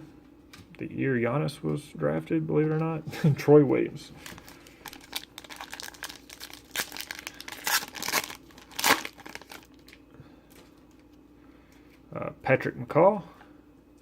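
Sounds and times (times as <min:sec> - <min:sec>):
plastic wrapper tearing and crinkling: 0:04.2 - 0:10.0.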